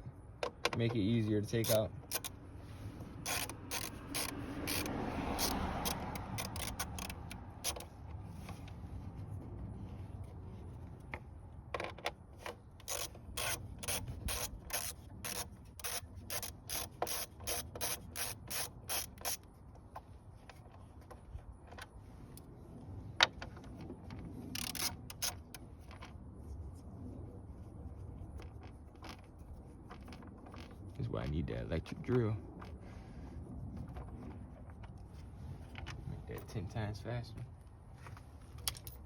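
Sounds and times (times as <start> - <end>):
ratchet wrench clicking: 1.4 - 2.4, 3.2 - 7.9, 12.8 - 19.4, 24.6 - 25.6.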